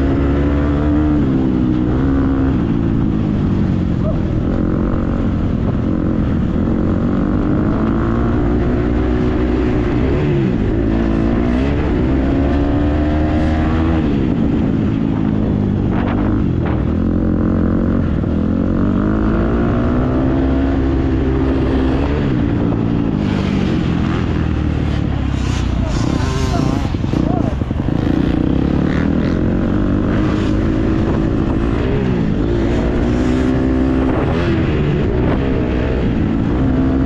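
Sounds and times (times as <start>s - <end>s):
motocross bike engine revving: 15.8s - 37.0s.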